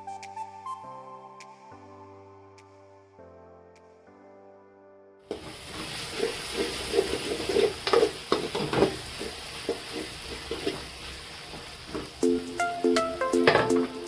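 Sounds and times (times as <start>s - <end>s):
utensil scraping a pan: 5.3s - 11.0s
food sizzling in a pan: 5.3s - 14.0s.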